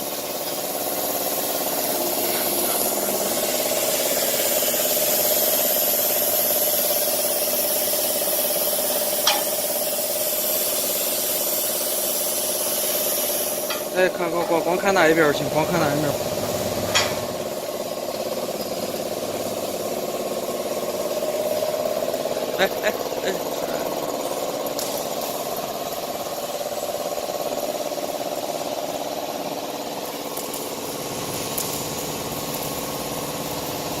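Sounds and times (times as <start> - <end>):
plasma cutter hissing and buzzing: 0.0 - 34.0.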